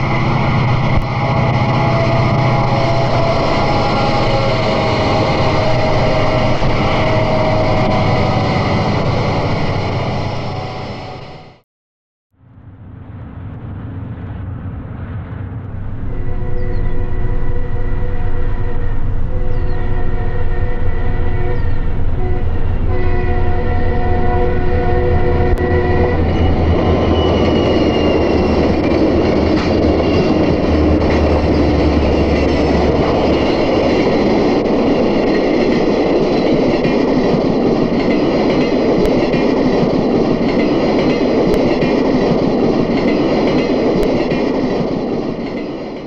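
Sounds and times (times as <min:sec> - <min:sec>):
wheel and rail noise: 0:00.0 - 0:11.6, 0:12.8 - 0:46.0
train horn chord: 0:00.6 - 0:11.6, 0:16.0 - 0:34.4.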